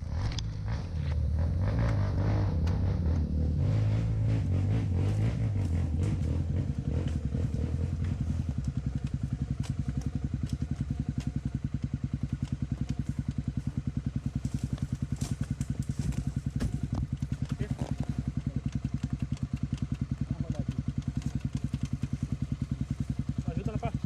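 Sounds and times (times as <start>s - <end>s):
motorcycle engine idling: 0.0s - 24.0s
faint clicks: 17.0s - 22.2s.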